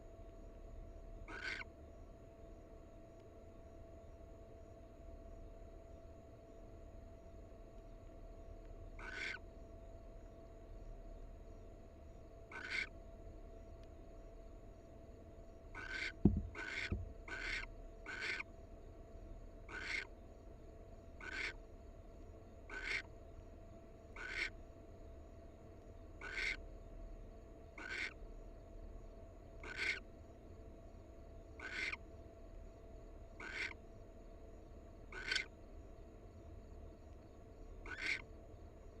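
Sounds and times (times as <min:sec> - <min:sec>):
owl hissing screech calls: 0:01.3 - 0:01.7, 0:09.0 - 0:09.4, 0:12.5 - 0:12.9, 0:15.8 - 0:18.5, 0:19.7 - 0:20.1, 0:21.2 - 0:21.6, 0:22.7 - 0:23.1, 0:24.2 - 0:24.5, 0:26.2 - 0:26.6, 0:27.8 - 0:28.2, 0:29.6 - 0:30.1, 0:31.6 - 0:32.0, 0:33.4 - 0:33.8, 0:35.1 - 0:35.5, 0:37.8 - 0:38.2
low thump: 0:16.2 - 0:17.1.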